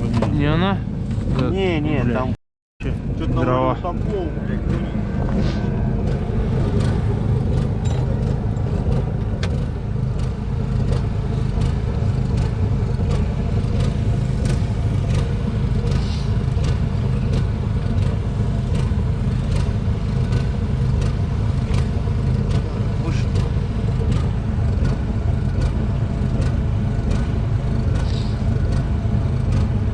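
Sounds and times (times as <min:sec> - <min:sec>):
engine droning: 0:00.0 - 0:29.9
sharp clicks and knocks: 0:07.6 - 0:10.3.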